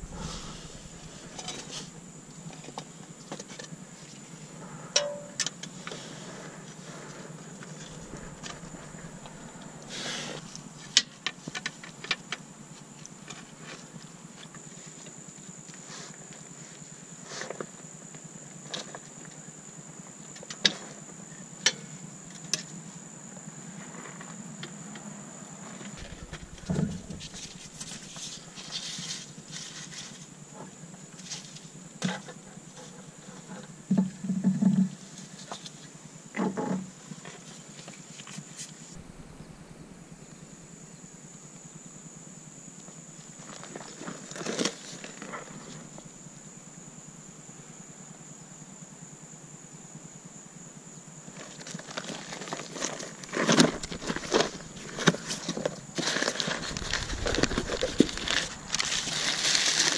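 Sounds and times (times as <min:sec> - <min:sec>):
heavy thumps: 0:00.0 - 0:02.1, 0:07.8 - 0:10.7, 0:26.0 - 0:28.7, 0:39.0 - 0:40.8, 0:53.6 - 0:55.2, 0:56.5 - 0:59.7
high-pitched whine: 0:00.0 - 0:03.2, 0:07.5 - 0:11.2, 0:25.8 - 0:29.4, 0:38.9 - 0:42.1, 0:53.6 - 0:55.8, 0:56.4 - 0:59.9.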